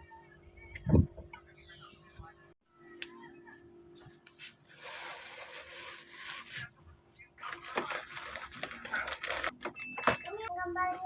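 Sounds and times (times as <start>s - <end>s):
rustling crinkling handling noise: 3.9s - 10.5s.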